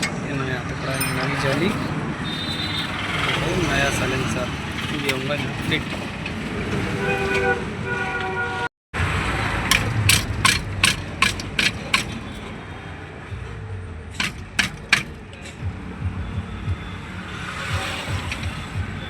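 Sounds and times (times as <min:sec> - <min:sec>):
sharp metallic clicks: 0:00.0 - 0:00.4, 0:09.6 - 0:12.6, 0:14.2 - 0:15.6.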